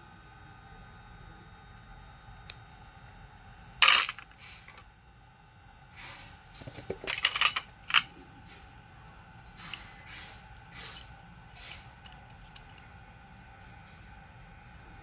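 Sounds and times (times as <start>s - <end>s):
parts clinking and rattling: 3.8s - 4.8s, 6.6s - 8.2s, 10.6s - 12.9s
small hard parts clicking: 6.6s - 8.1s.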